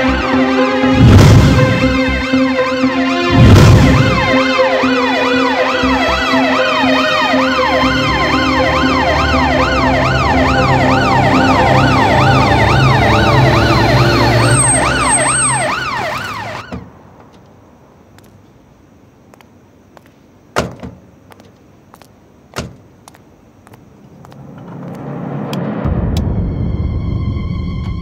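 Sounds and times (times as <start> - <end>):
emergency sirens wailing: 0.0 - 17.0.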